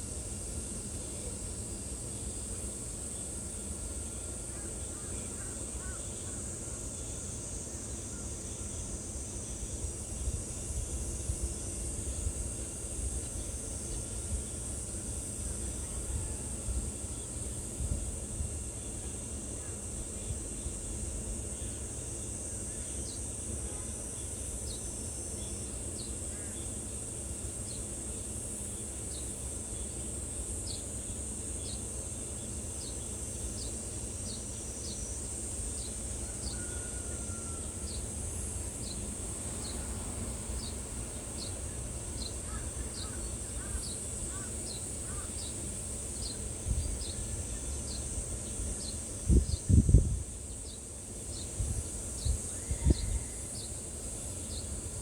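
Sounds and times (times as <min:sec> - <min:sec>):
high insect buzz: 0:00.0 - 0:55.0
low steady rush: 0:37.7 - 0:47.7.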